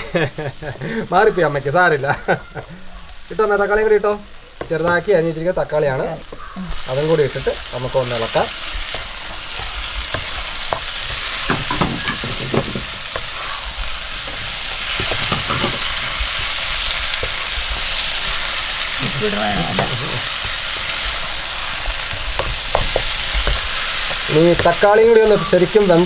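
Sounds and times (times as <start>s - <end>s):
onions sizzling in hot oil: 0.0s - 26.0s
spatula scraping and tapping pan: 8.7s - 18.5s, 21.6s - 25.9s.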